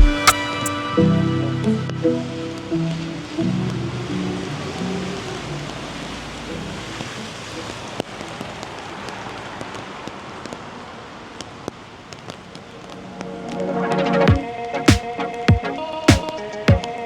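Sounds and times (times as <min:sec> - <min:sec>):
steady rain: 0:00.8 - 0:17.0.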